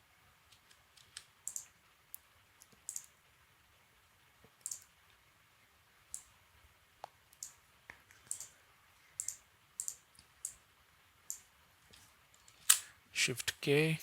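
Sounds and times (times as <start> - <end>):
mouse and keyboard clicking: 0.5 - 1.7, 2.6 - 3.1, 4.6 - 4.9, 7.3 - 8.5, 9.2 - 10.6.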